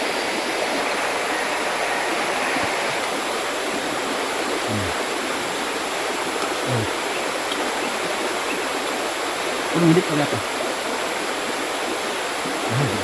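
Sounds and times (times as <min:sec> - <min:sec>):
river water running: 0:00.0 - 0:13.0.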